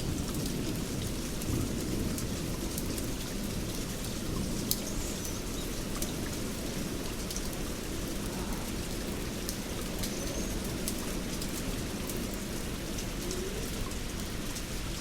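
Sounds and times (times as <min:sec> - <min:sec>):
steady rain: 0:00.0 - 0:15.0
faint bird chirp: 0:10.1 - 0:10.6.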